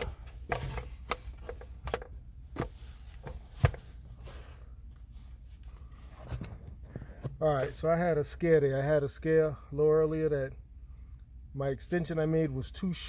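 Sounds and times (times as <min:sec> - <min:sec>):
ductwork clicks and rustles: 0:00.0 - 0:05.1.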